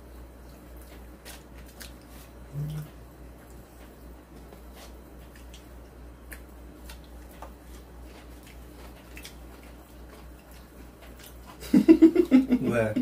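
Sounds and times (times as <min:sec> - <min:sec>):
person chewing food: 0:00.0 - 0:12.4
low steady hum: 0:00.0 - 0:13.0
wet mouth sounds: 0:00.8 - 0:03.6.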